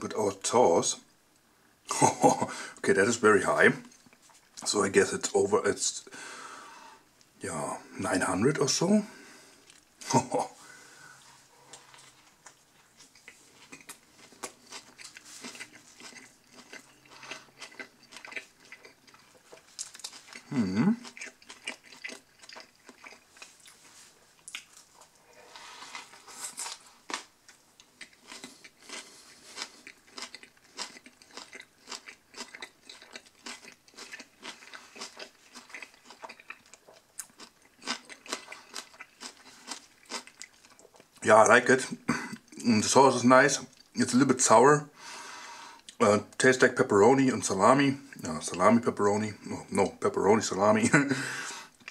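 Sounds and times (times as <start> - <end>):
person chewing sandwich: 9.5 - 10.4, 11.2 - 41.2, 51.1 - 51.9.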